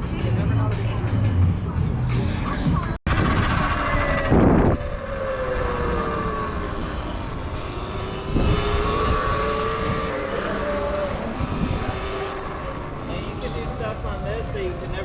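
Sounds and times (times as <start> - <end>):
wind buffeting microphone: 3.1 - 15.0
electric dirt bike motor whining: 3.8 - 15.0.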